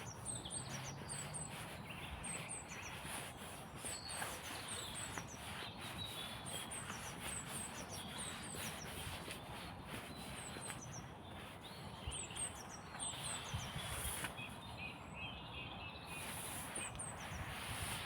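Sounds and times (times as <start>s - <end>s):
outdoor background noise: 0.0s - 18.0s
songbirds chirping: 0.0s - 18.0s
lower bird twittering: 4.0s - 18.0s.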